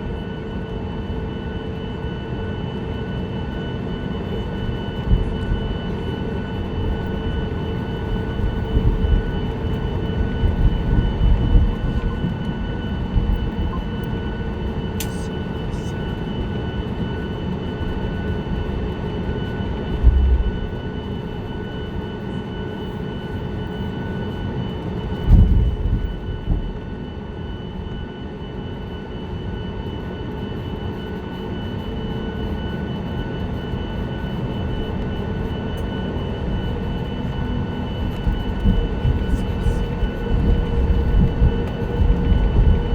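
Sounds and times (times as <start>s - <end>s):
thin steady whine: 2.0s - 42.9s
aircraft cabin rumble: 3.2s - 16.3s, 17.6s - 27.1s, 34.9s - 42.9s.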